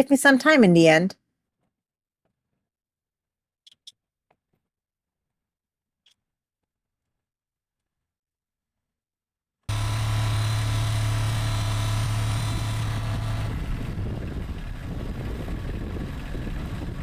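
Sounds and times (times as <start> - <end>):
tractor diesel engine running: 9.7 - 17.0.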